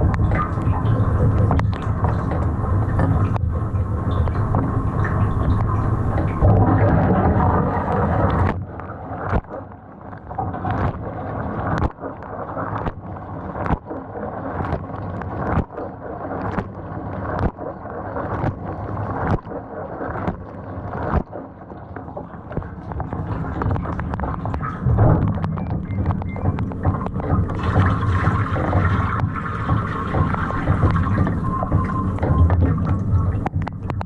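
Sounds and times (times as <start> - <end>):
dishwasher water rushing: 0.0 - 8.5, 24.4 - 33.5.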